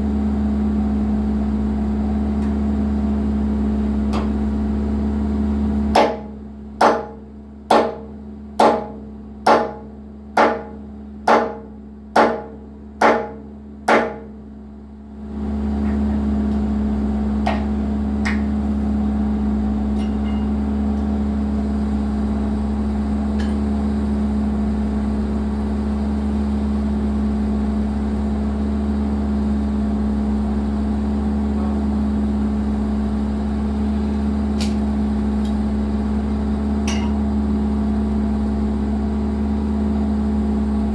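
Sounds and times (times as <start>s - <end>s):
excavator diesel engine running: 15.3s - 40.9s.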